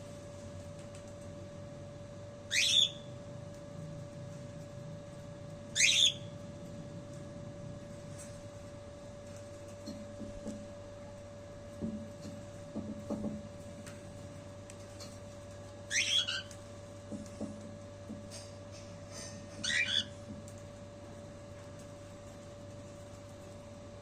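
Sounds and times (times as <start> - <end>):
electrical hum: 0.0 - 24.0
bird shrill chirps: 2.5 - 3.1, 5.8 - 6.3, 15.9 - 16.5.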